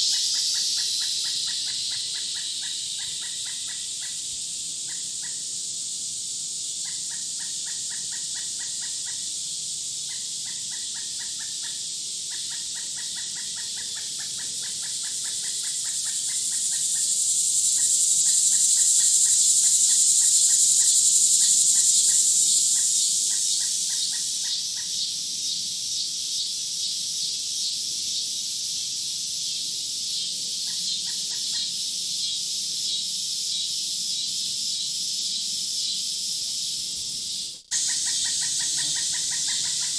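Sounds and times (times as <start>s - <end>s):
bird chattering calls: 0.0s - 4.2s, 10.1s - 17.2s, 17.8s - 25.1s, 30.6s - 31.8s, 37.7s - 39.9s
insects buzzing: 0.0s - 39.9s.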